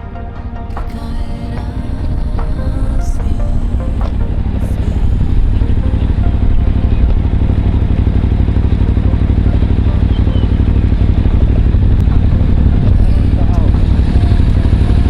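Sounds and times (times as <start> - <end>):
motorcycle engine running: 5.3 - 15.0.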